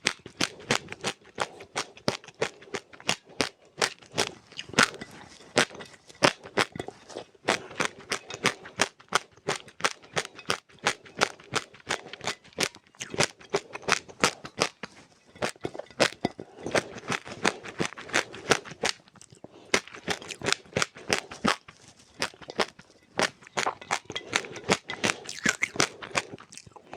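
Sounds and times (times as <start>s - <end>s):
dry seeds crunched and chewed: 0.0s - 26.9s.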